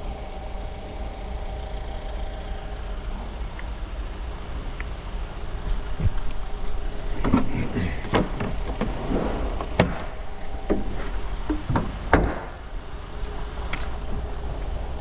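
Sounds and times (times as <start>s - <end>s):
steady low hum: 0.0s - 15.0s
sharp knocks and clunks: 10.7s - 12.6s.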